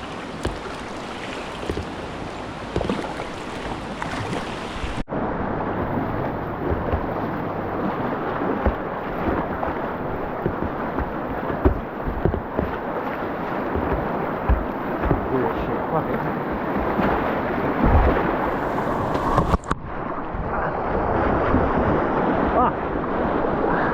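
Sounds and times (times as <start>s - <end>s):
low thumps and knocks: 0.0s - 0.9s, 1.5s - 4.3s, 5.7s - 19.6s
whitewater rapids rushing: 0.0s - 19.4s.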